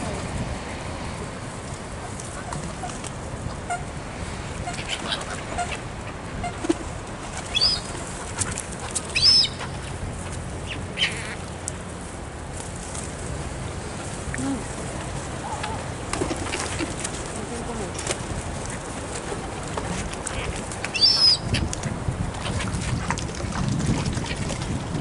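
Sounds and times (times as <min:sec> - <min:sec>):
high-pitched bird calls: 0:07.5 - 0:08.0, 0:09.1 - 0:09.7, 0:20.9 - 0:21.7
wings flapping: 0:16.1 - 0:21.8.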